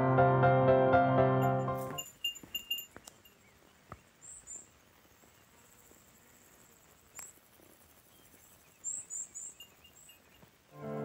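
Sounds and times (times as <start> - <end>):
outdoor ambience: 1.3 - 11.0
thin high bird chirps: 2.8 - 4.8, 7.1 - 10.5.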